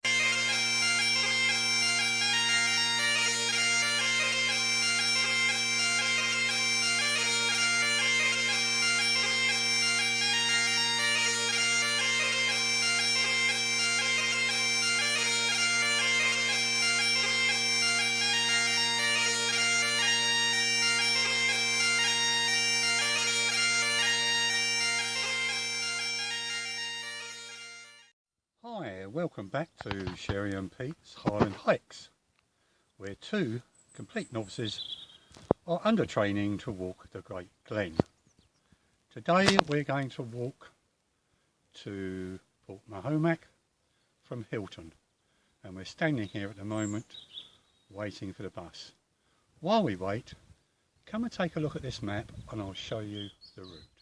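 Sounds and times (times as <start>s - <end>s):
bagpipes playing a tune: 0.0s - 28.1s, 39.4s - 39.8s, 46.2s - 47.1s.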